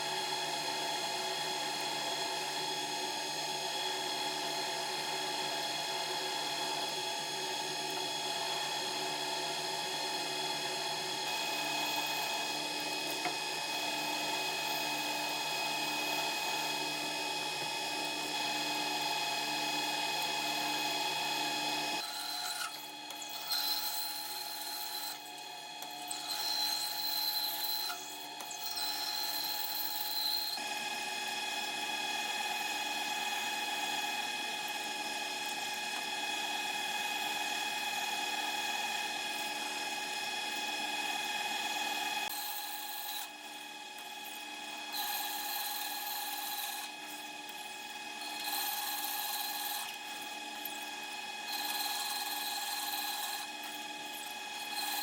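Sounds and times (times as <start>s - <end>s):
machine tool cutting steel: 22.0s - 30.6s, 42.3s - 43.3s, 44.8s - 47.0s.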